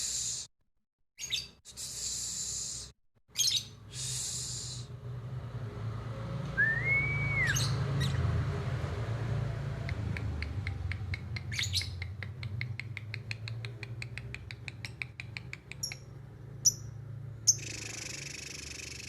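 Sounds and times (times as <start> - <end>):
birds chirping: 3.3 - 4.9, 6.6 - 8.4, 9.9 - 19.0
whistled bird call: 6.6 - 7.8.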